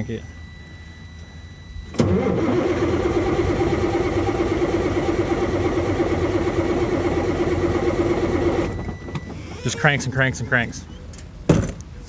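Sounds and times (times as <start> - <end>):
diesel engine cranking: 1.9 - 9.9.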